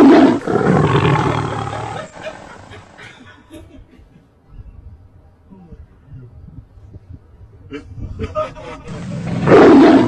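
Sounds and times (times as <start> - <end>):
tiger roaring: 0.0 - 3.0, 9.1 - 10.0.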